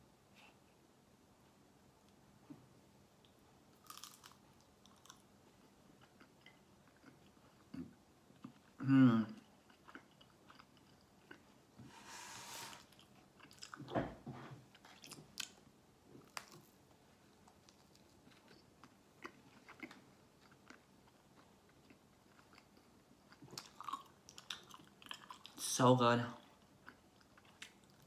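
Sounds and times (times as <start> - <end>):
faint biting and chewing: 3.2 - 11.6, 14.7 - 25.6.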